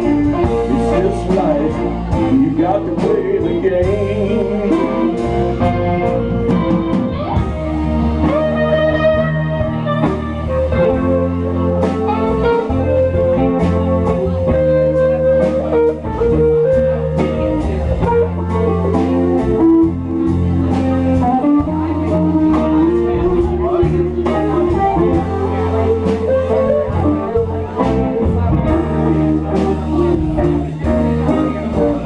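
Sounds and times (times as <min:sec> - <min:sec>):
bass guitar: 0:00.0 - 0:32.0
drums: 0:00.0 - 0:32.0
electric guitar lead: 0:00.0 - 0:32.0.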